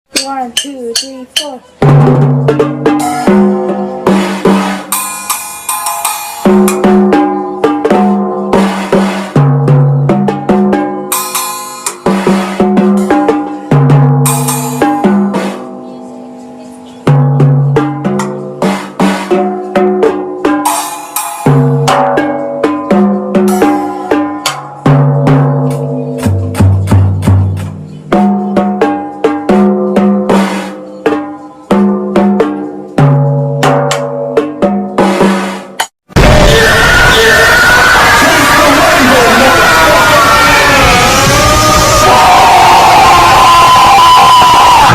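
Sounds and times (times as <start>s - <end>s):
drum kit with cymbal crashes: 0.1s - 44.9s
held pitched notes: 2.9s - 8.8s.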